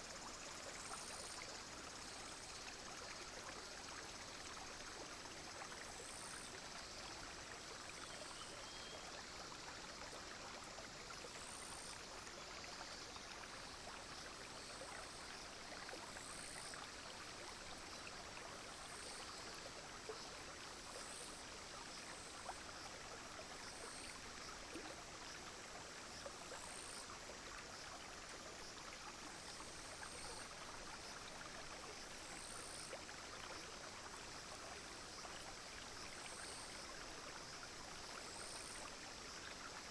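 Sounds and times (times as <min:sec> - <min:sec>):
brook flowing: 0:00.0 - 0:39.9
insect short high chirp: 0:07.9 - 0:09.3.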